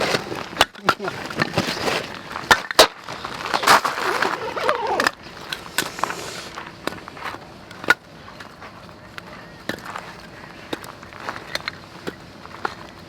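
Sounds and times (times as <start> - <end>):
hard objects knocking and clattering: 0.0 - 3.8.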